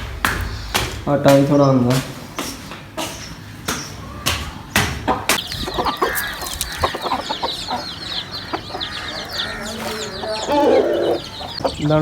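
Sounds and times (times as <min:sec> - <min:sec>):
sharp knocks: 0:00.0 - 0:05.9
chicks peeping: 0:00.0 - 0:12.0
chickens clucking: 0:02.5 - 0:12.0.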